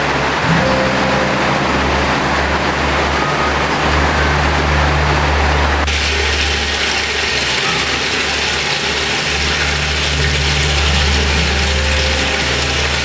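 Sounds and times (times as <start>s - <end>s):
strong wind rumbling: 0.0s - 7.0s
heavy rain on a metal roof: 0.0s - 13.0s.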